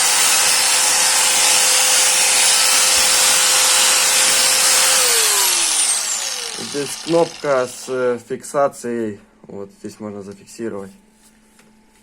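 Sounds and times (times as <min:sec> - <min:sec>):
angle grinder running: 0:00.0 - 0:08.1.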